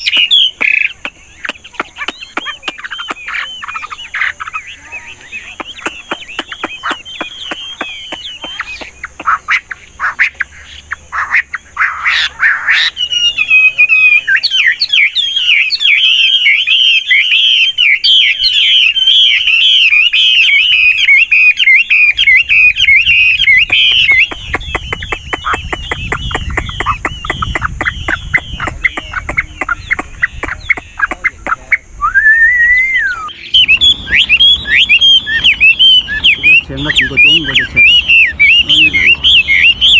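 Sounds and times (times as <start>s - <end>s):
bird singing varied phrases: 0.0s - 39.9s
whistled bird note: 31.7s - 39.9s.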